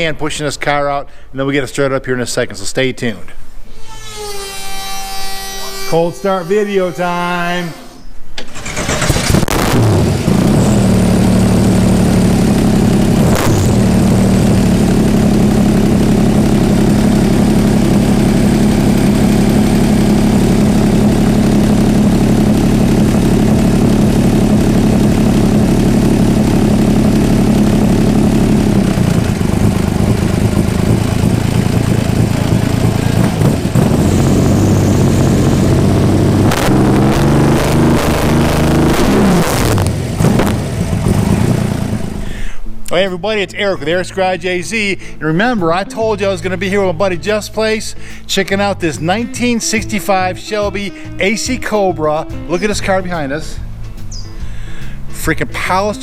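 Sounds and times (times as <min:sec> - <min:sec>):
racing engine revving and idling: 0:08.5 - 0:42.4.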